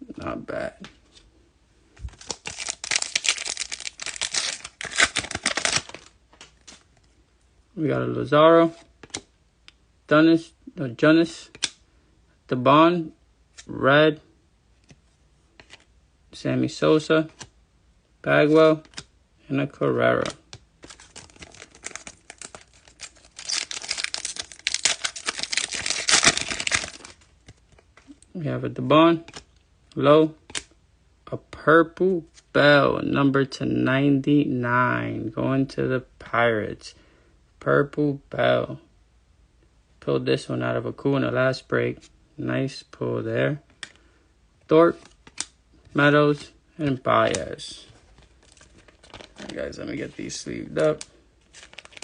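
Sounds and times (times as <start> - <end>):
foil wrapper crinkling: 2.0 - 6.1, 20.8 - 27.3, 48.1 - 49.6, 50.3 - 52.0.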